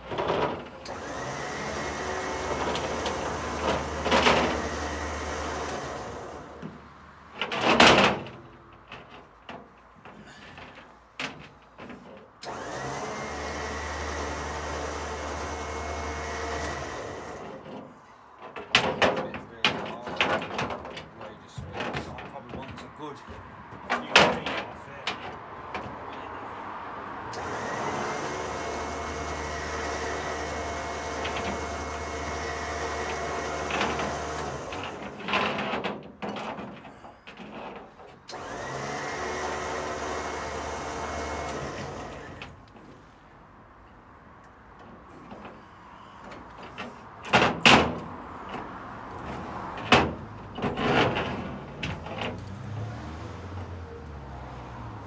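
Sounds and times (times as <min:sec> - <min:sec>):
winch motor whining: 0:00.7 - 0:06.7, 0:12.4 - 0:17.7, 0:27.3 - 0:35.2, 0:38.3 - 0:42.5.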